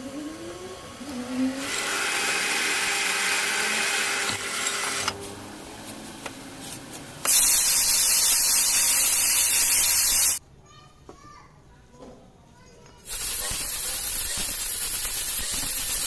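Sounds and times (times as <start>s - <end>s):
power tool working metal: 0.0s - 5.2s, 13.1s - 16.0s
loud hiss: 7.2s - 10.4s, 13.1s - 16.0s.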